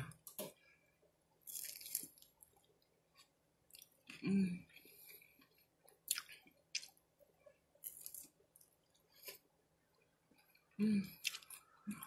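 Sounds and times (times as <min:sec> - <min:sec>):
crisp crunches of chewing: 0:01.5 - 0:02.7, 0:07.8 - 0:08.4.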